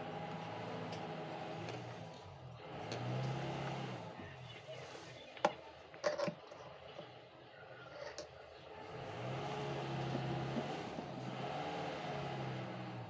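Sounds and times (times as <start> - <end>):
vehicle engine humming: 0.0 - 5.2, 8.4 - 13.0.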